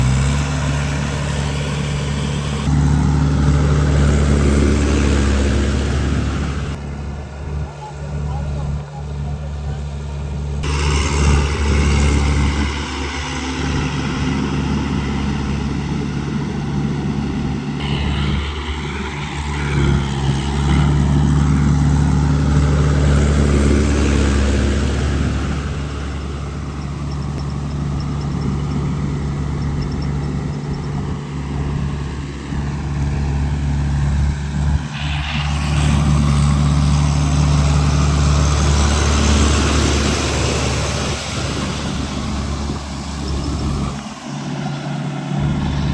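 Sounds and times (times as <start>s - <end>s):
tractor engine running: 0.0s - 45.9s
mechanical noise: 34.8s - 45.9s.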